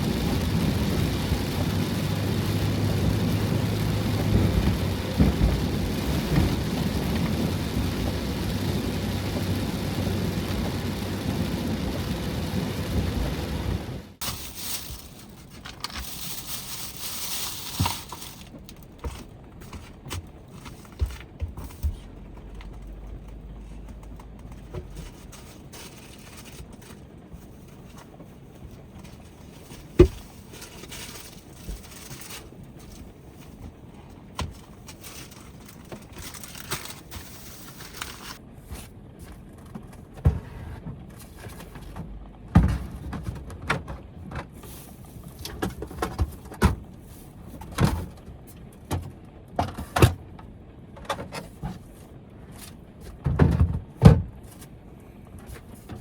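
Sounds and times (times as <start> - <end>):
objects knocking and clattering: 28.8 - 38.4.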